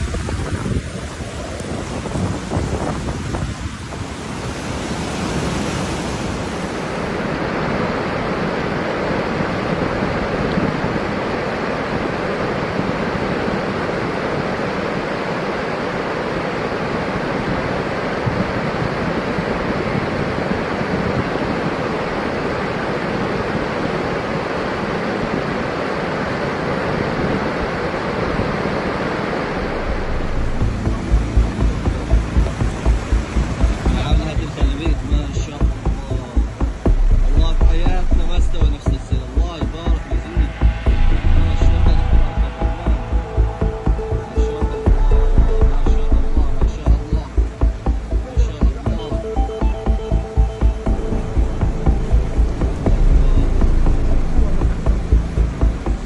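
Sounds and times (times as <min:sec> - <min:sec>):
floodwater rushing: 0:00.0 - 0:56.0
low throbbing beat: 0:29.5 - 0:56.0.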